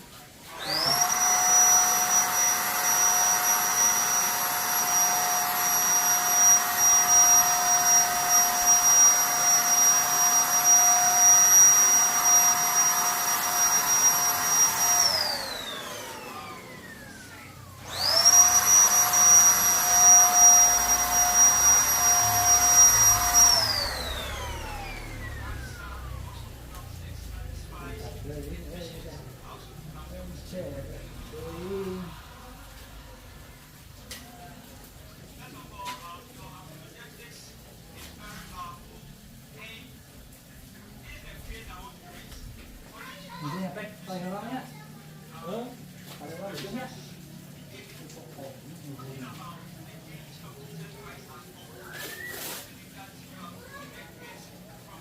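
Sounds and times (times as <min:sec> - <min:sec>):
paint spray gun motor whining: 0:00.5 - 0:26.8.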